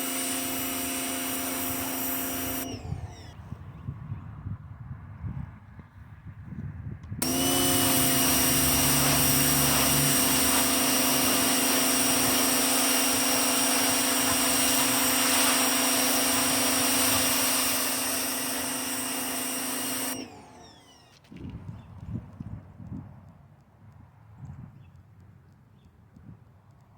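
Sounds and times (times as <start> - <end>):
electric pressure washer running: 0.0 - 3.4, 7.2 - 21.3
hiss of spray: 7.2 - 20.2.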